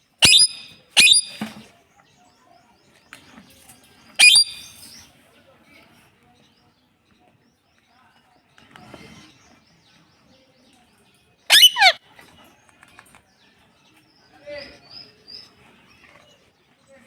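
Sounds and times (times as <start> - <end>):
parrot shrill call: 0.2 - 1.4, 4.2 - 4.8, 11.5 - 12.0.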